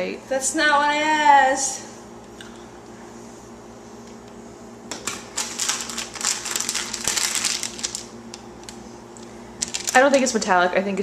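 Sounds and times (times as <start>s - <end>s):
steady low hum: 0.0s - 11.0s
plastic wrapper crinkling: 5.0s - 10.3s.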